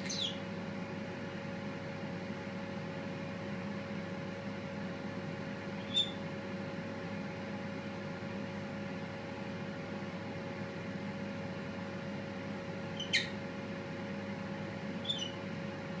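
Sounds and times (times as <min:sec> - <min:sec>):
parrot chirping: 0:00.0 - 0:00.4, 0:05.8 - 0:06.2, 0:13.0 - 0:13.4, 0:15.0 - 0:15.4
steady background hum: 0:00.0 - 0:16.0.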